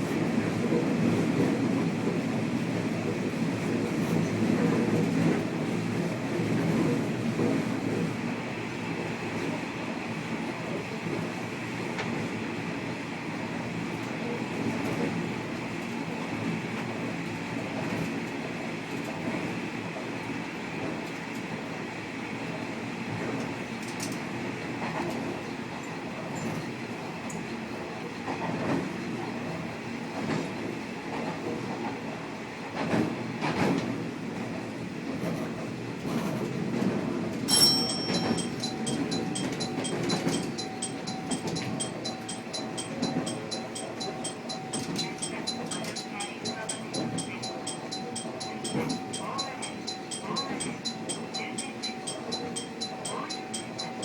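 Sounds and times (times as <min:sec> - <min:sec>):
diesel railcar running: 0:37.5 - 0:54.0
rapid bell ringing: 0:37.5 - 0:54.0.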